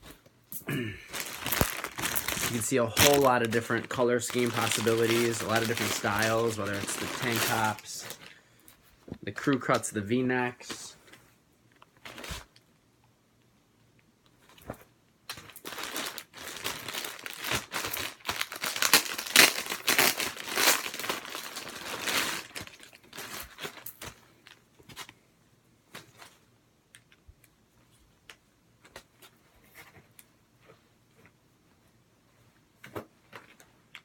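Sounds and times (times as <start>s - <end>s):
packaging crinkling and rustling: 1.1s - 8.4s, 10.7s - 12.6s, 14.5s - 25.2s.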